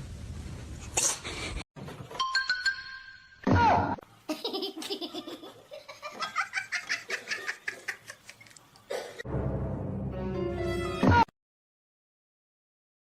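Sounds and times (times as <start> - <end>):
laughter: 4.3 - 8.4.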